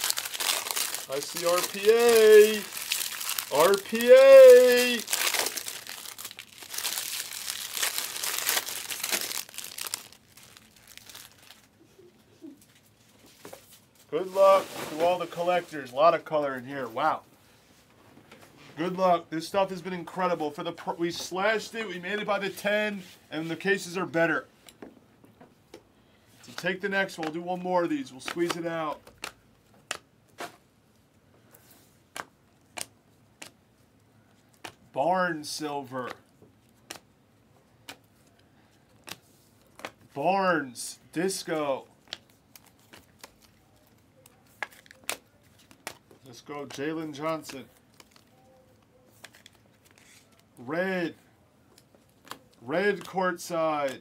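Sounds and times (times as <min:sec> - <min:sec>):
card packs rustling: 0:00.0 - 0:11.7, 0:41.2 - 0:50.6
wrappers crinkling and tearing: 0:00.0 - 0:11.8, 0:41.2 - 0:50.6.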